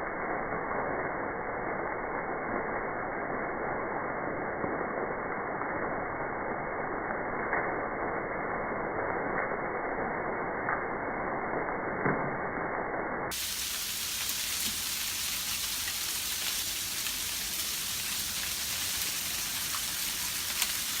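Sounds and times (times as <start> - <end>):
freezing rain hissing: 13.3 - 21.0
ice ticking on surfaces: 14.2 - 21.0.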